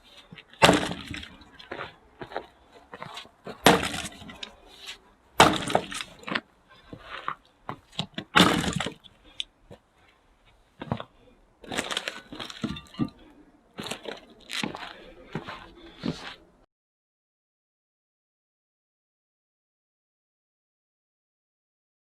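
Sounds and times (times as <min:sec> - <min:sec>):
axe splitting firewood: 0:00.2 - 0:09.5, 0:10.8 - 0:14.8
wood cracking apart: 0:00.6 - 0:01.6, 0:03.6 - 0:04.6, 0:05.4 - 0:06.4, 0:08.3 - 0:09.0, 0:11.6 - 0:13.1.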